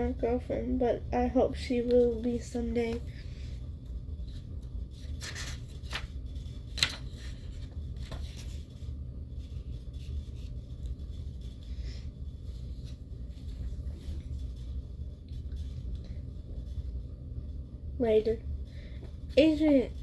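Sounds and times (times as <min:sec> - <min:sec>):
low room hum: 0:00.0 - 0:20.0
paper pages rustling: 0:04.2 - 0:11.8.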